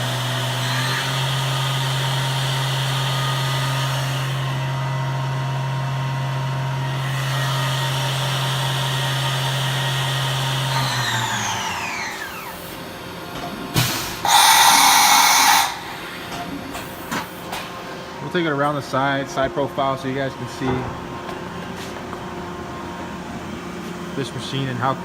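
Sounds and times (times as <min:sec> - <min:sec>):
machine humming and whining: 0:00.0 - 0:25.0
loud hiss: 0:13.8 - 0:16.3.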